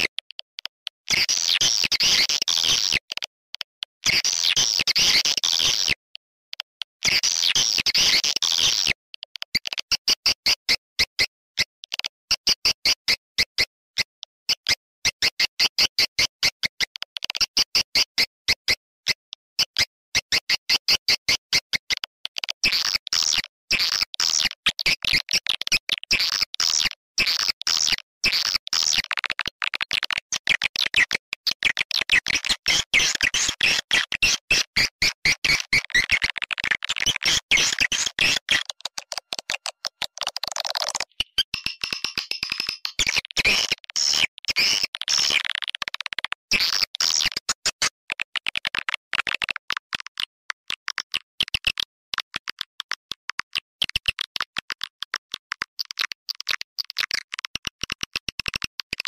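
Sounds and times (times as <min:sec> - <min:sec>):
bird chirps and twitters: 0:30.4 - 0:47.8.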